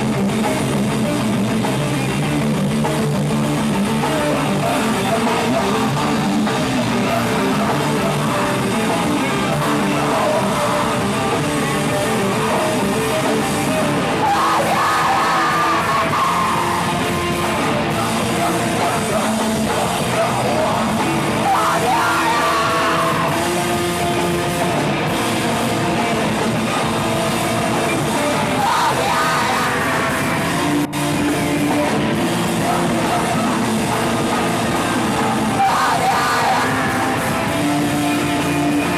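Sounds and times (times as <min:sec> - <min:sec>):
loud distorted rock music: 0:00.0 - 0:38.9
yelled vocals: 0:00.0 - 0:38.9.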